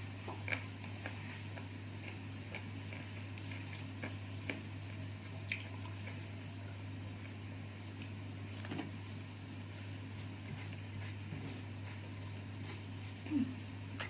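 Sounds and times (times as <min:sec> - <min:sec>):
low electrical hum: 0:00.0 - 0:14.0
person chewing: 0:00.2 - 0:07.4.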